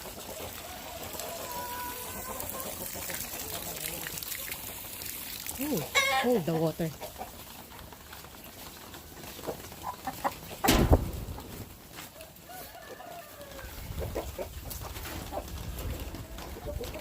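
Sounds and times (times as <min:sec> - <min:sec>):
chickens clucking: 0:00.0 - 0:17.0
rooster crowing: 0:00.6 - 0:02.6, 0:12.2 - 0:13.9
loud thump: 0:10.6 - 0:11.5.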